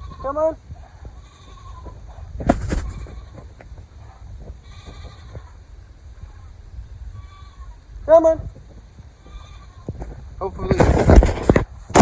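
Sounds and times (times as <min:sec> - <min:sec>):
baby goats bleating: 0:00.0 - 0:03.6, 0:04.6 - 0:06.6, 0:07.2 - 0:07.9, 0:09.2 - 0:10.0.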